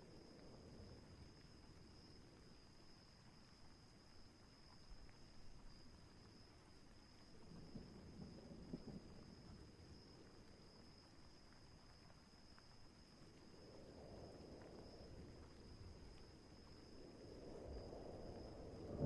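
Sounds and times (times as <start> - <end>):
insect drone: 0.0 - 19.0
distant thunder rumbling: 17.7 - 19.0.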